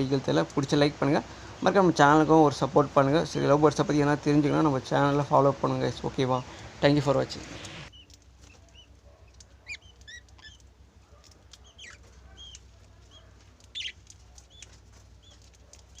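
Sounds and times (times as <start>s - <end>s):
budgies and lovebirds chirping: 7.3s - 16.0s
louder bird calls: 7.4s - 10.6s, 11.6s - 16.0s.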